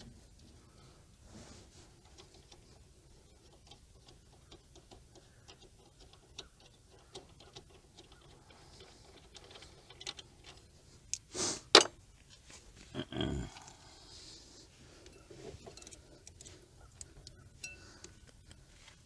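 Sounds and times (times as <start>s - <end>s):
sharp metallic clank: 11.2s - 12.0s.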